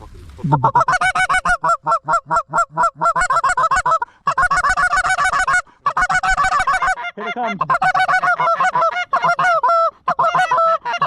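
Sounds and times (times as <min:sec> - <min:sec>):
goose call honks and clucks: 0:00.4 - 0:11.0.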